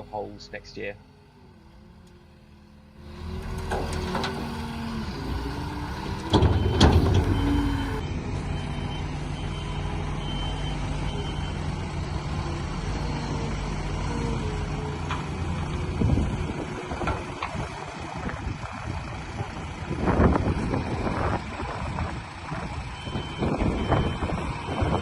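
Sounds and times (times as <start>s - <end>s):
diesel loader engine running: 0.0s - 25.0s
loud clunk: 6.2s - 7.6s
reversing alarm beeping: 6.3s - 11.6s, 22.9s - 25.0s.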